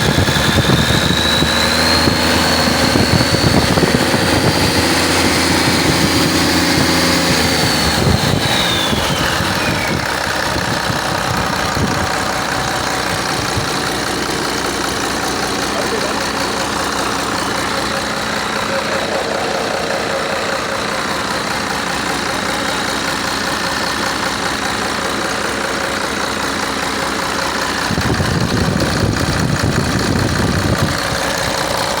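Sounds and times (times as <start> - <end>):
rough low sound: 0.0 - 23.9
truck diesel engine idling: 0.0 - 32.0.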